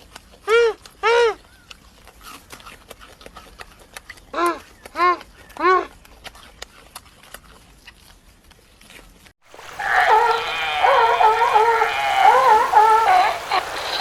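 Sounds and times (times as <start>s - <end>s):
dog whining: 9.8s - 13.6s.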